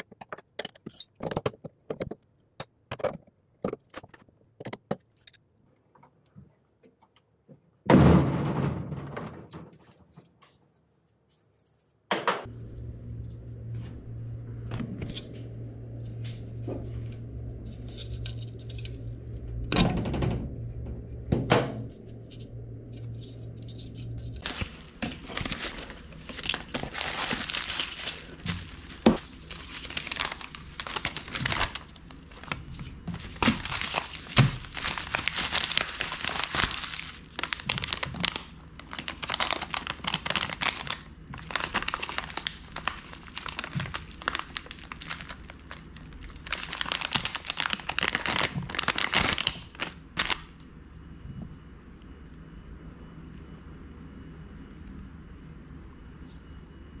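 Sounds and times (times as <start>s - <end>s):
low steady hum: 11.3s - 57.0s
crinkling and rustling: 12.4s - 51.7s.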